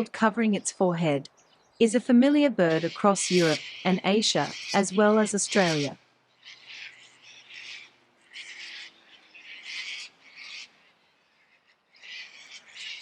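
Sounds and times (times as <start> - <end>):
coot harsh calls: 2.6 - 13.0.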